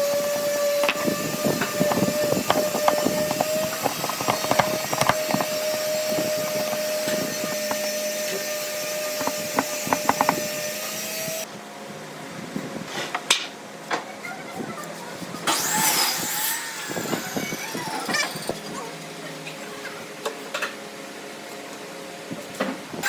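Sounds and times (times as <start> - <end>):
power tool whining: 0.0 - 11.5, 15.5 - 18.7
knocks of wood being worked: 0.1 - 11.5.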